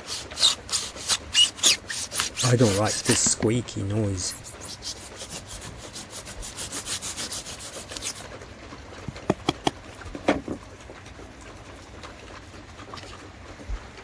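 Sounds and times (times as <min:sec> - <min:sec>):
blade sawing through foam: 0:00.0 - 0:03.5, 0:04.1 - 0:08.3.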